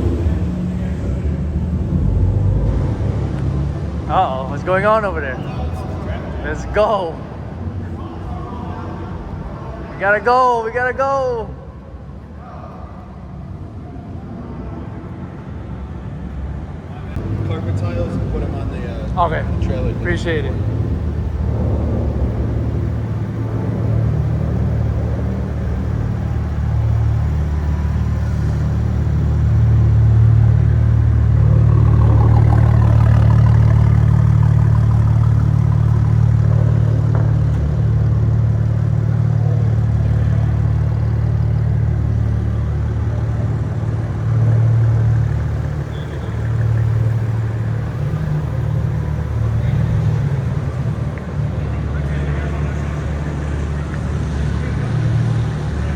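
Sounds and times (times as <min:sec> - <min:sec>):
car engine running: 0:17.1 - 0:55.9.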